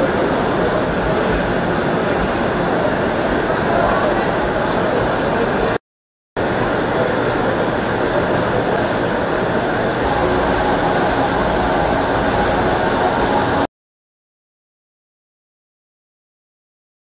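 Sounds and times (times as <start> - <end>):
train interior running noise: 6.4 - 13.7.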